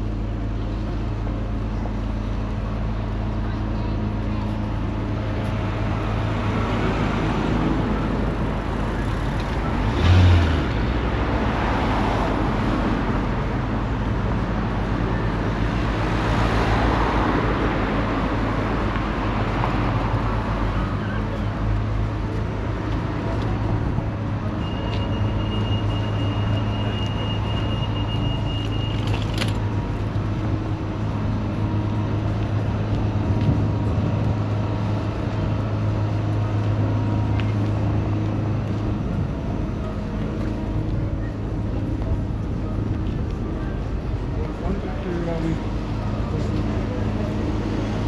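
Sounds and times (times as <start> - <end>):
vehicles passing: 0.0 - 48.0
car engines running low: 3.0 - 19.6.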